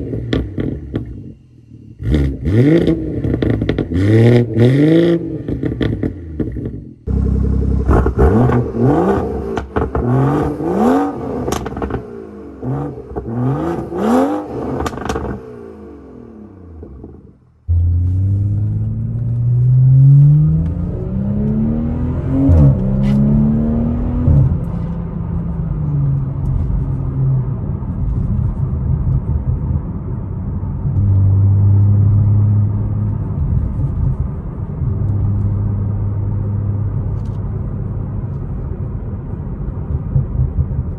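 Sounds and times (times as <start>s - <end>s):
car engine revving with crackles: 0.0s - 40.9s
car accelerating through gears: 17.7s - 26.3s.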